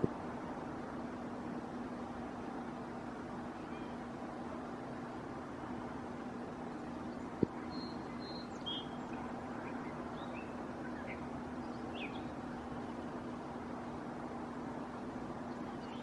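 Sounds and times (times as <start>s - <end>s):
background hiss: 0.0s - 16.0s
faint bird chirps: 3.5s - 4.1s, 6.9s - 13.4s, 15.4s - 16.0s.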